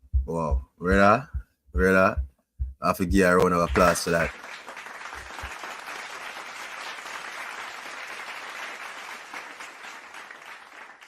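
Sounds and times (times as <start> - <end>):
applause: 3.6 - 11.0.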